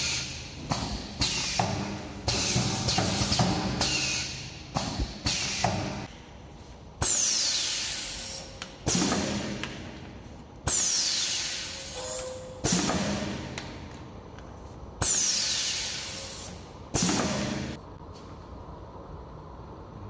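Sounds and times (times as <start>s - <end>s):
pneumatic air hisses: 0.0s - 6.1s, 7.0s - 9.4s, 10.6s - 13.0s, 15.0s - 17.7s.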